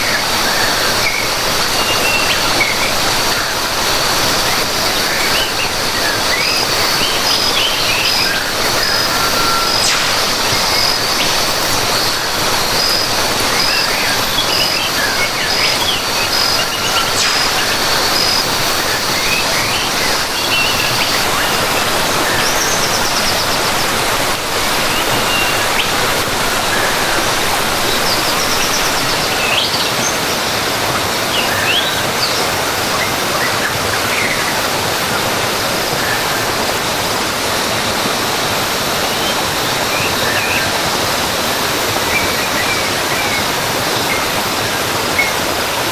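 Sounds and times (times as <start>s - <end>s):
birds chirping: 0.0s - 34.7s
waterfall rushing: 0.0s - 45.9s.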